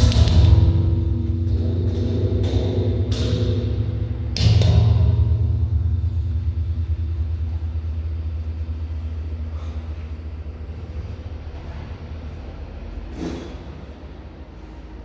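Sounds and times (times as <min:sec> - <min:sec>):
train passing rumble: 0:05.3 - 0:15.0.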